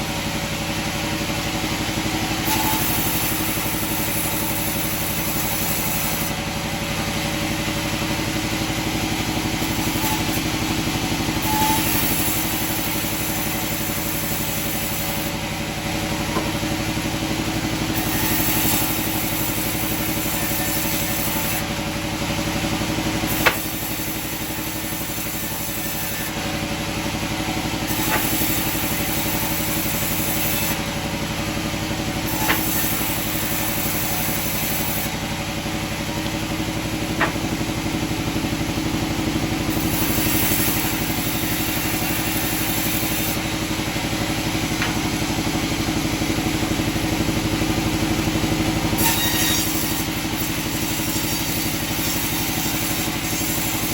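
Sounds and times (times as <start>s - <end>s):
sawmill machinery humming: 0.0s - 53.9s
sharp knocks: 37.2s - 37.6s.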